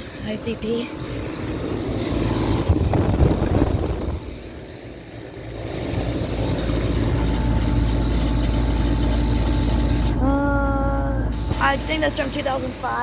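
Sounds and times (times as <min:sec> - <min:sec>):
air conditioning unit humming: 0:00.0 - 0:13.0.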